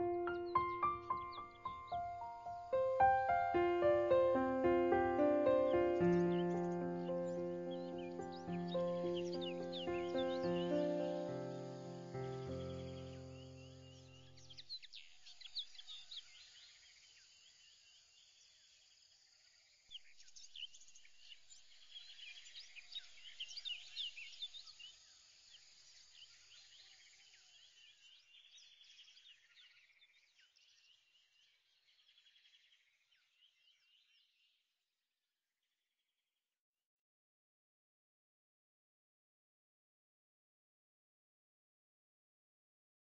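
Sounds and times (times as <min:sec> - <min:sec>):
birds chirping: 0:00.0 - 0:16.4.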